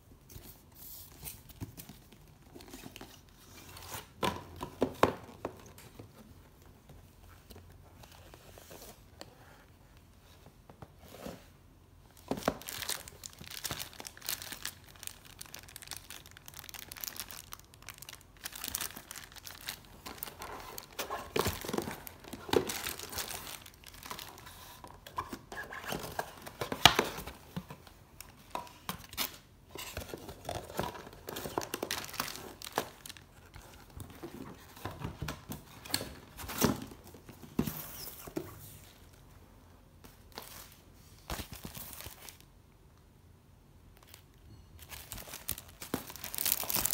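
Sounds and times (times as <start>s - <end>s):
plastic bag crinkling: 12.4s - 24.6s, 44.0s - 46.9s.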